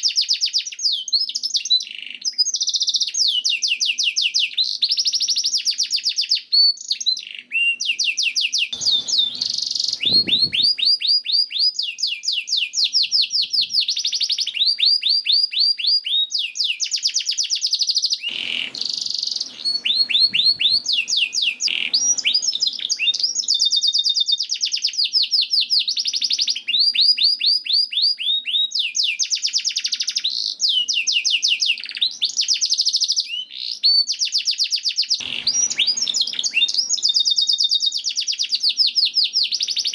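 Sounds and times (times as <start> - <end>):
canary singing trills: 8.6 - 25.0, 27.9 - 39.9
brief bursts of noise: 8.8 - 10.9.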